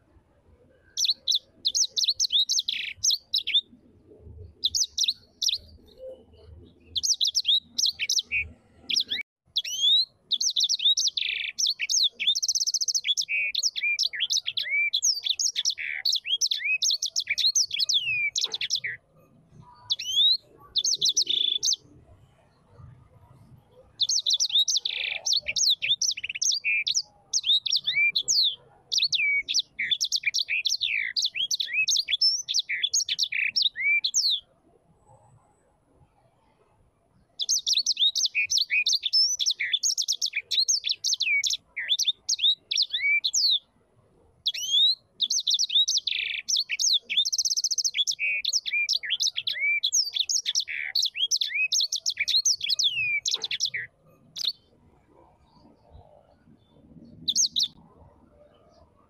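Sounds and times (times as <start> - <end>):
small bird chirping and singing: 0.8 - 34.5, 37.2 - 43.7, 44.4 - 59.0.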